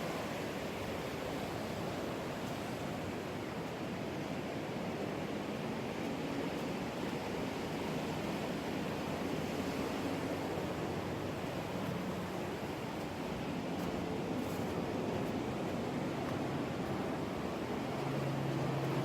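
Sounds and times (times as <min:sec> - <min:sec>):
ocean surf washing ashore: 0:00.0 - 0:19.0.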